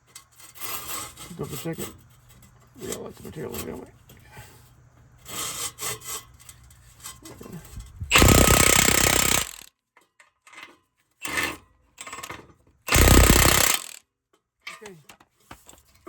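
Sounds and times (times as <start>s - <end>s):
impact wrench hammering: 8.1s - 9.7s, 12.9s - 14.0s.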